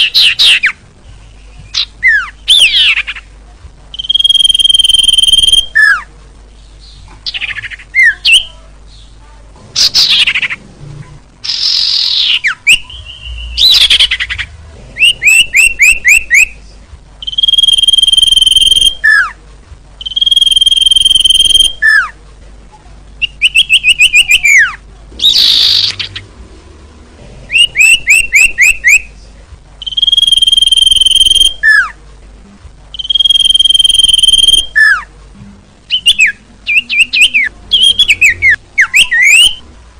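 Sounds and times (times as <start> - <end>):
bird chirps: 3.9 - 9.2, 11.4 - 16.6, 17.2 - 19.4, 20.0 - 22.1, 23.2 - 26.3, 27.5 - 29.1, 29.8 - 31.9, 32.9 - 35.1, 35.9 - 39.6
songbird high whistle: 4.0 - 6.0, 20.0 - 22.0, 29.8 - 31.8, 33.0 - 35.0
harsh sweeping bird calls: 4.0 - 6.1, 9.8 - 10.7, 11.4 - 16.6, 17.2 - 19.4, 23.2 - 26.3, 27.5 - 29.0, 29.8 - 31.9, 35.9 - 39.6.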